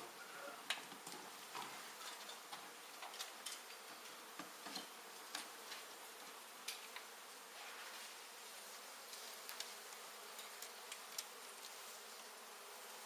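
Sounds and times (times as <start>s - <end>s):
honey bees buzzing: 0.0s - 13.0s
light clicks and ticks: 9.4s - 11.8s.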